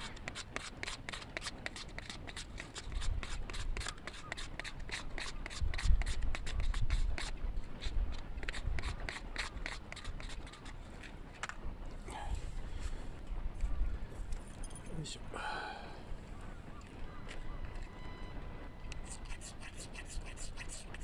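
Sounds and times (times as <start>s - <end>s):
knife scraping wood: 0.0s - 11.2s.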